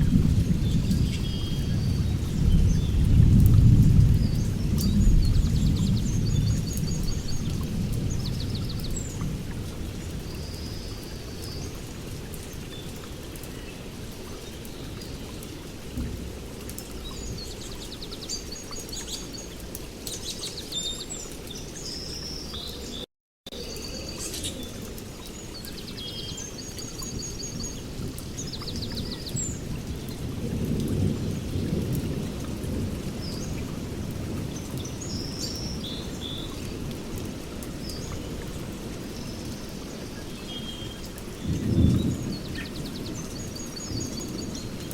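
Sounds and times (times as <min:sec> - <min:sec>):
low rolling thunder: 0:00.0 - 0:10.8, 0:27.9 - 0:34.7, 0:41.4 - 0:43.5
steady rain: 0:00.0 - 0:44.9
birds chirping and trilling: 0:04.1 - 0:09.2.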